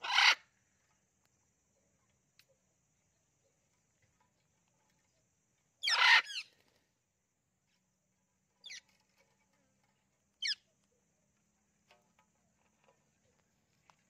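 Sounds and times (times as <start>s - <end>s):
parrot calling: 0.0s - 0.4s, 5.8s - 6.5s.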